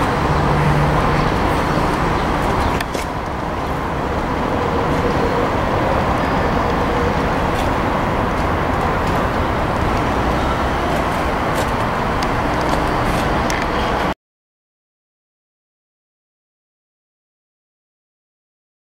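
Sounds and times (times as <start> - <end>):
diesel generator engine running: 0.0 - 14.1.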